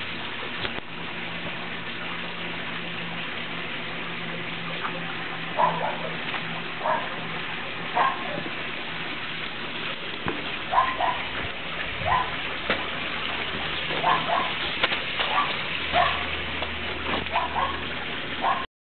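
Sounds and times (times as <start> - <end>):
puppies yipping: 5.6 - 6.2, 8.0 - 8.5, 10.7 - 11.4, 12.0 - 12.4, 14.0 - 14.6, 15.2 - 16.3, 17.3 - 18.7.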